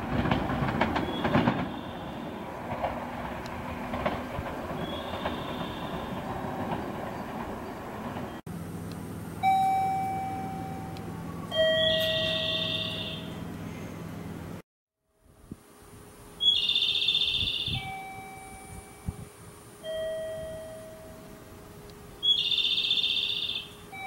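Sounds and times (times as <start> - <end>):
train wheels clattering on rails: 0.0 - 8.4
low steady hum: 8.5 - 22.4
two-note electronic chime: 9.4 - 13.2.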